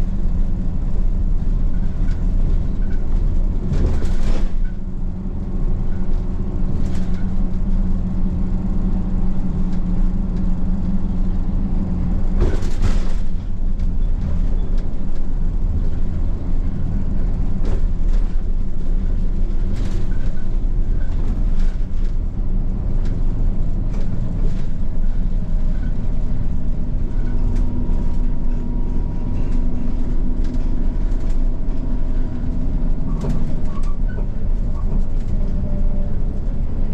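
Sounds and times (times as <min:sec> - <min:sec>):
bus engine and road noise: 0:00.0 - 0:36.9
light rattles and clicks: 0:06.1 - 0:07.8, 0:12.3 - 0:36.9.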